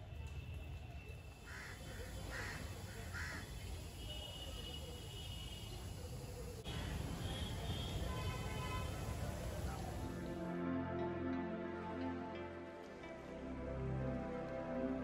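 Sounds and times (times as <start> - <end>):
bird calling: 1.5 - 3.9.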